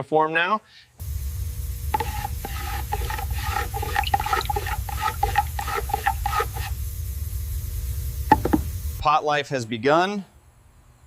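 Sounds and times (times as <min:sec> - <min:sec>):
steady low hum: 0:01.0 - 0:09.1
wet sloshing strokes in a cup: 0:01.8 - 0:06.9.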